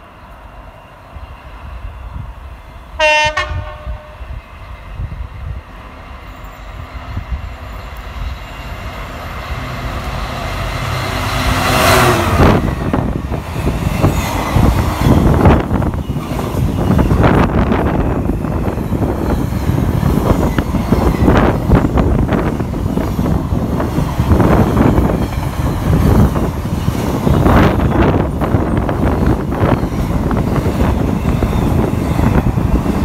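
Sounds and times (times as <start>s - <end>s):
freight train passing: 0.0s - 33.0s
locomotive horn: 3.0s - 4.4s.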